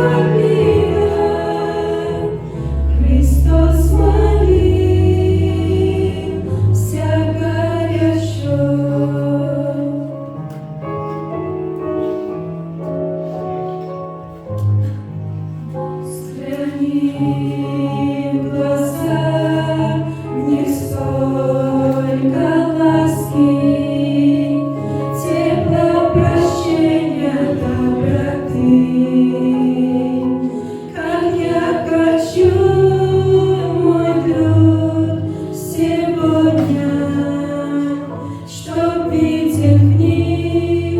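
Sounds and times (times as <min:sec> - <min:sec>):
choir singing a hymn: 0:00.0 - 0:10.4, 0:15.7 - 0:40.9.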